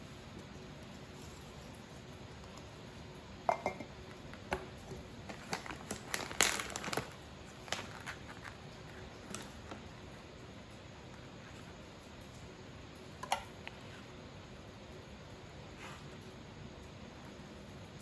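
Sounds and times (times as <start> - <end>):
glass clinking: 3.5 - 3.9
packaging crinkling: 4.2 - 10.2.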